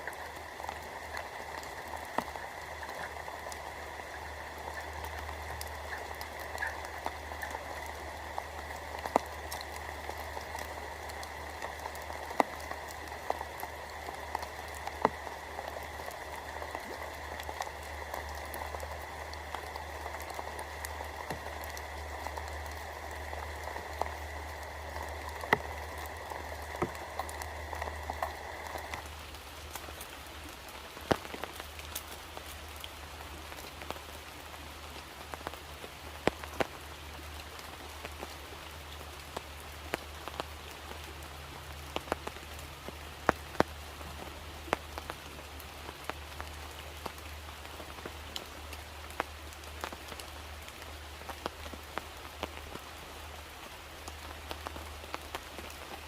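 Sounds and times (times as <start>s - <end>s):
mid-pitched hiss: 0.0s - 56.0s
rain falling: 0.0s - 56.0s.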